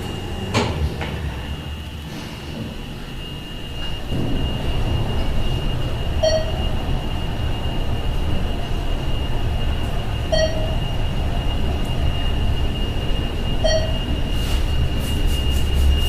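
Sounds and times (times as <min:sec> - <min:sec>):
elevator car rumble: 0:00.0 - 0:16.0
high whine: 0:00.0 - 0:16.0
short elevator chimes: 0:13.6 - 0:14.2.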